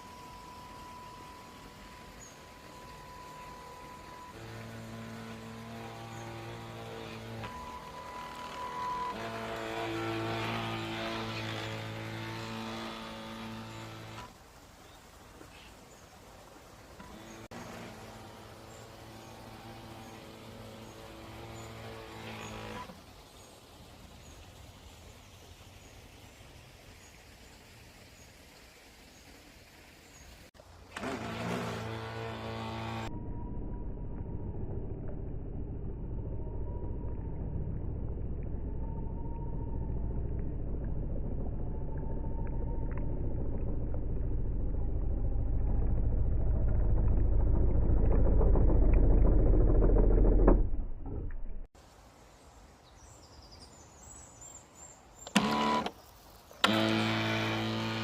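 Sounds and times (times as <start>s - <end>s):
toy boat motor whining: 0.0s - 14.3s, 17.0s - 23.0s, 30.8s - 33.2s, 55.2s - 56.0s, 56.6s - 58.0s
low rumble: 32.5s - 51.7s.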